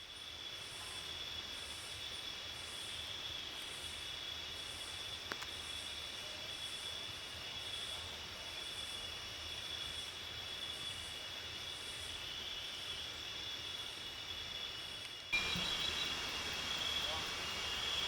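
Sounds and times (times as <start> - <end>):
pulsing insect call: 0.0 - 18.0
high-pitched insect tones: 13.6 - 18.0
insect buzzing: 13.6 - 18.0.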